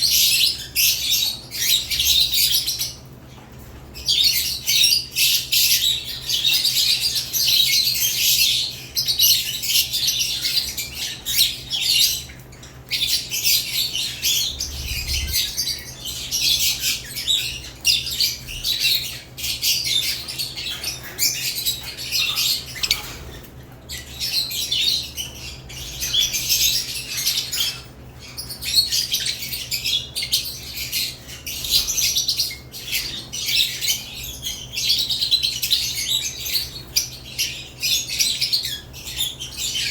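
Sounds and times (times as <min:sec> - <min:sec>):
lovebirds chirping and squawking: 0:00.0 - 0:39.9.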